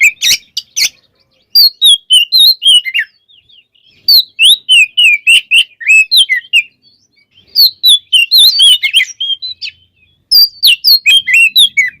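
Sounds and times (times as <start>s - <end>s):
bird singing loudly: 0.0s - 12.0s.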